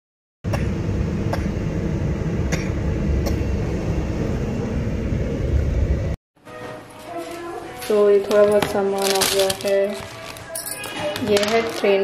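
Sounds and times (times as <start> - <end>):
train coach low rumble: 0.5 - 6.2.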